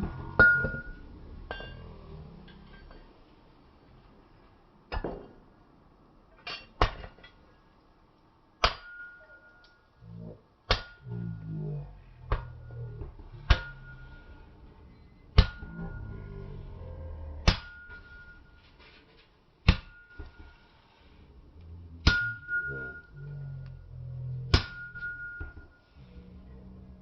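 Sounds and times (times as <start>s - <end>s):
hammer striking metal on anvil: 0.1s - 1.9s, 8.6s - 9.7s, 13.5s - 14.2s, 15.4s - 16.1s, 17.4s - 18.4s, 19.7s - 20.5s, 22.0s - 23.1s, 24.5s - 25.6s.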